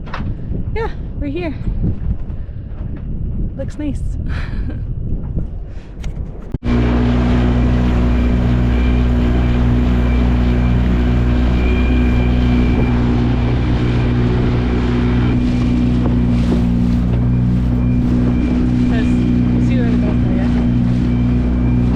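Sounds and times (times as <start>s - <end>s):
boat motor humming: 6.3s - 21.9s.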